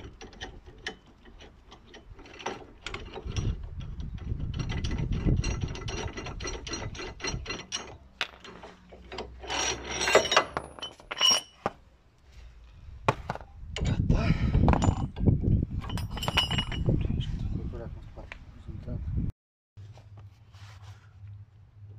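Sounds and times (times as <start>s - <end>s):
metal tools clinking: 0.0s - 11.6s, 15.8s - 17.0s.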